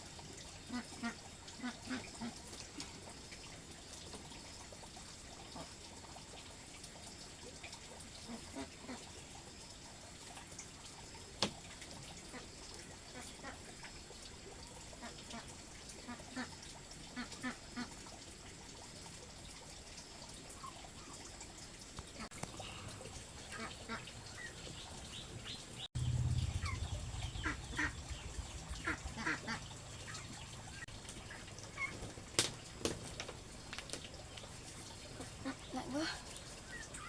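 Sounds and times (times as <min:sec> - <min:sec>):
birds calling: 0:22.3 - 0:37.0
low rumble: 0:26.0 - 0:30.8.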